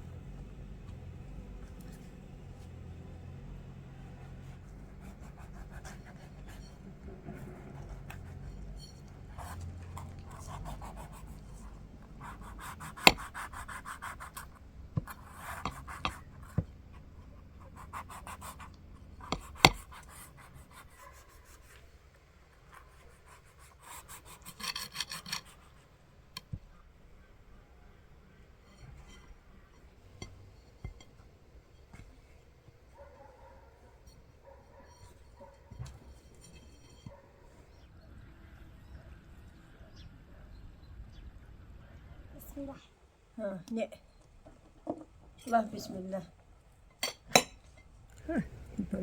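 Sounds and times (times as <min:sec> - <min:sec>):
scraping and rubbing: 0:03.9 - 0:21.9, 0:22.6 - 0:25.9, 0:28.6 - 0:37.8.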